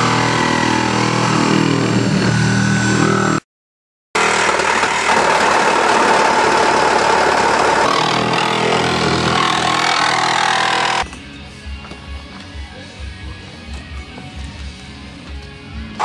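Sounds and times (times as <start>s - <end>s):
loud motor noise: 0.0s - 3.4s, 4.2s - 11.1s
background music: 9.5s - 16.0s.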